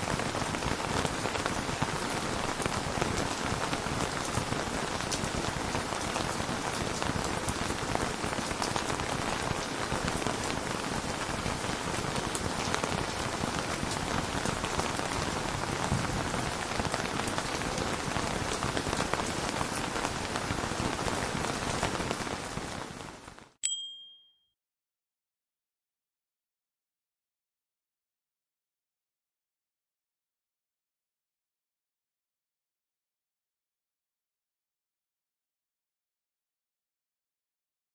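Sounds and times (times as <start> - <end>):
heavy rain: 0.0 - 23.4.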